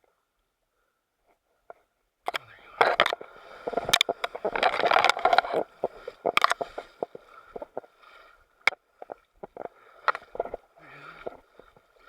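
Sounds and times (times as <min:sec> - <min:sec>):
knocks and scrapes on boat: 0:02.8 - 0:08.0
paddle splashing water: 0:02.8 - 0:12.0.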